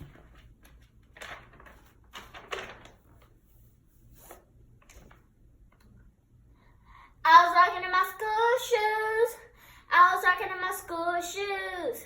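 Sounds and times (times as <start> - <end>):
faint rustling and handling: 0.0 - 5.9
low steady hum: 0.0 - 11.6.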